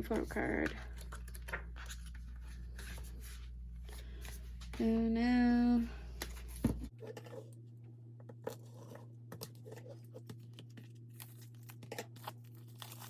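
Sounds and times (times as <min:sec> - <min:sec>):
paper packaging crinkling and tearing: 0:10.4 - 0:13.0.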